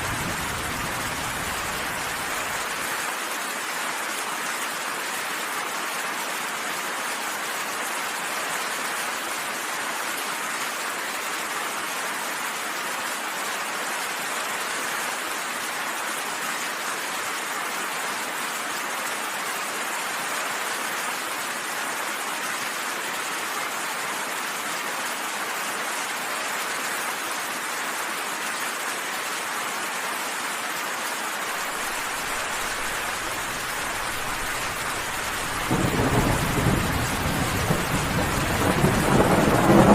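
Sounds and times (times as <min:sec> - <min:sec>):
heavy rain hissing: 0:00.0 - 0:02.9, 0:31.4 - 0:39.9.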